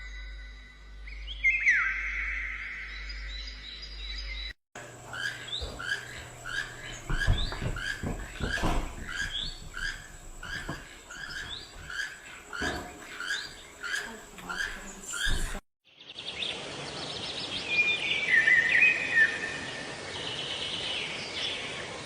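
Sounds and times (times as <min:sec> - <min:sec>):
soft low knocks: 0:04.8 - 0:15.6
bird calling in squeaky notes: 0:05.1 - 0:15.6.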